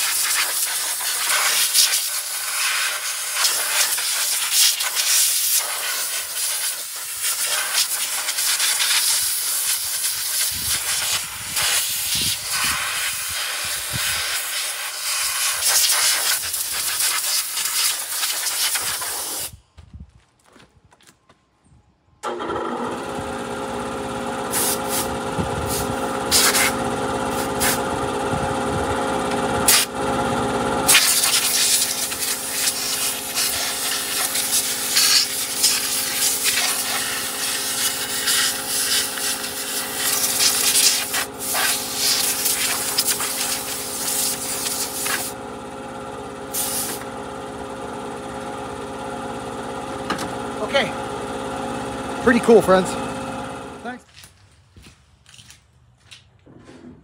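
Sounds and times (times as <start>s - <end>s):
chainsaw idling and revving: 22.3s - 54.0s.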